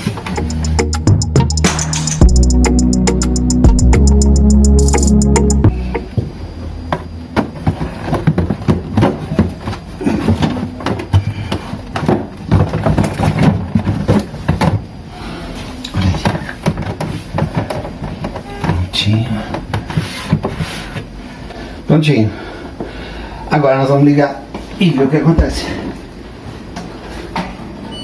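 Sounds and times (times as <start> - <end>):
plastic fridge parts clicking and clattering: 7.4 - 14.9.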